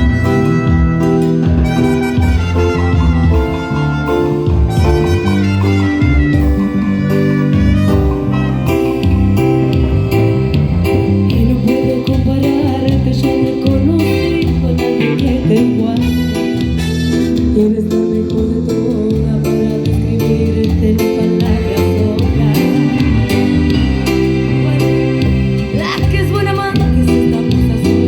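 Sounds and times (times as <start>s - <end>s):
drum hits: 0.0s - 16.2s
bass line: 0.0s - 28.0s
guitar: 0.0s - 28.0s
melody line: 0.0s - 28.0s.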